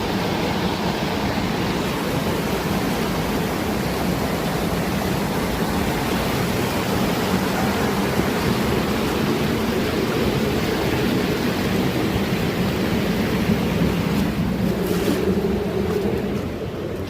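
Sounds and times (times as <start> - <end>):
rushing stream water: 0.0 - 17.0.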